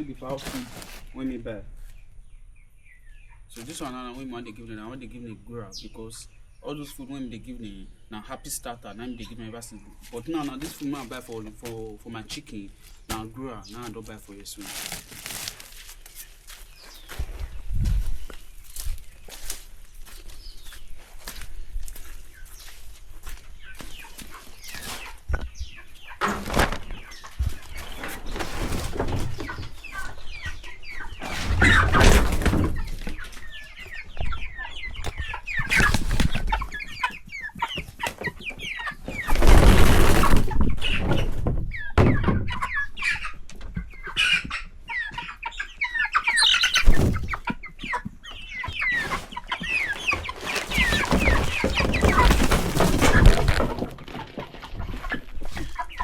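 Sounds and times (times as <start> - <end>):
chickens clucking and chirping: 0.0 - 56.0
rustling noise: 0.2 - 1.2, 10.0 - 25.6, 26.2 - 33.5, 39.1 - 41.6, 48.9 - 56.0.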